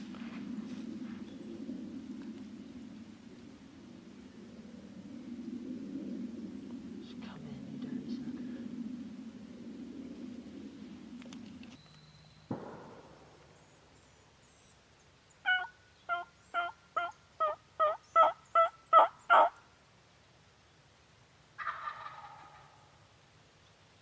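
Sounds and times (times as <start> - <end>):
turkey gobble: 15.5 - 19.6, 21.6 - 23.0
turkey yelps: 15.5 - 19.6, 21.6 - 22.8.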